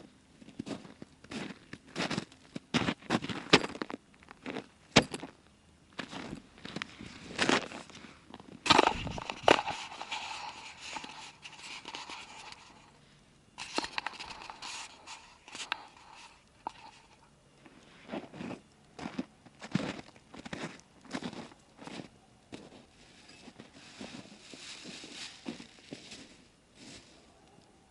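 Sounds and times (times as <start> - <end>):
crackly rustling: 0.0 - 27.9
dry wood crunching and snapping: 6.0 - 12.9.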